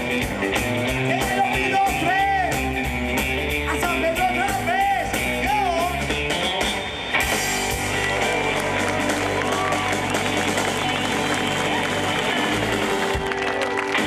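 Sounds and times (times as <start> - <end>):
rock band playing: 0.0 - 14.0
crowd cheering and applause: 7.0 - 14.0.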